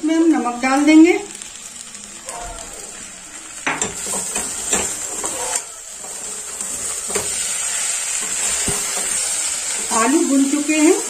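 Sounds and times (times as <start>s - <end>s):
food sizzling in oil: 0.0s - 11.0s
metal spatula scraping pot: 3.7s - 10.0s.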